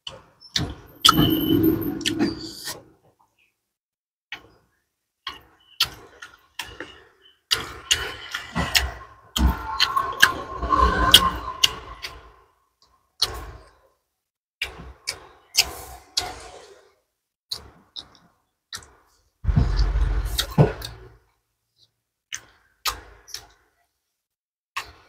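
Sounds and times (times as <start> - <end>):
person chewing food: 5.2 - 10.4.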